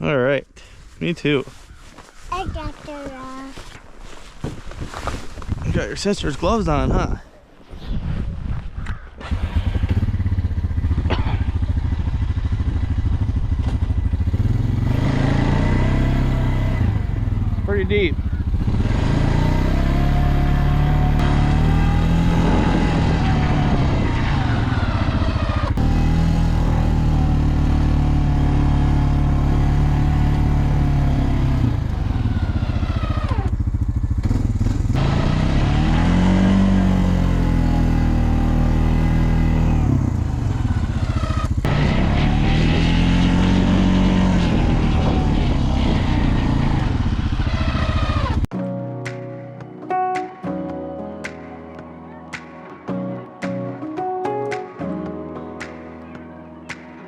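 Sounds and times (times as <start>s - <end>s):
snowplow engine revving: 9.2s - 17.8s, 18.4s - 48.5s.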